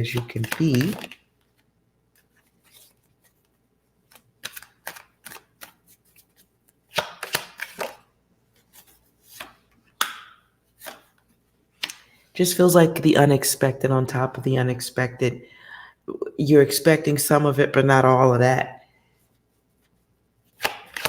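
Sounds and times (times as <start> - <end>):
cards being shuffled: 0.0 - 12.2, 19.9 - 21.0.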